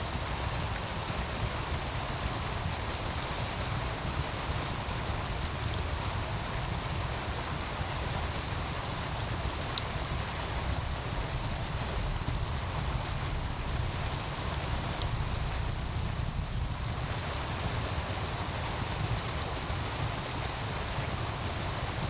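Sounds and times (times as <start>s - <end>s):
wood fire crackling and popping: 0.1s - 22.0s
low rumble: 10.9s - 18.0s.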